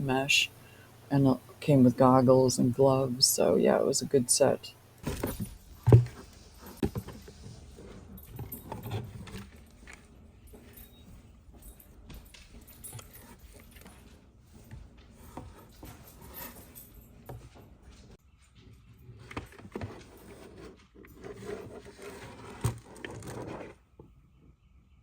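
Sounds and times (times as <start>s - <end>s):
objects being handled: 5.0s - 23.9s.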